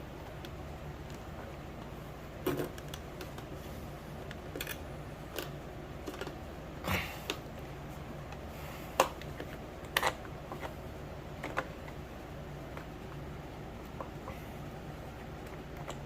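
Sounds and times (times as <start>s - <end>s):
steady low hum: 0.0s - 16.0s
plastic parts clicking and knocking: 4.3s - 6.4s, 11.4s - 12.0s.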